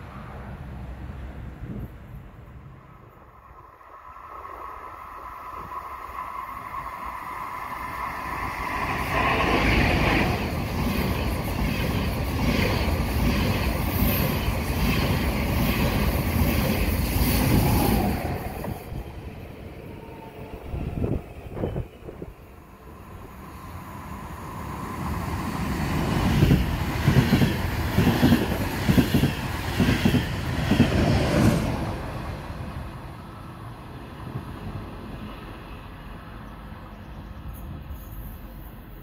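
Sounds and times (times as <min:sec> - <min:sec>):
trains passing: 0:00.0 - 0:39.0
rhythmic clatter of train wheels: 0:05.4 - 0:32.1.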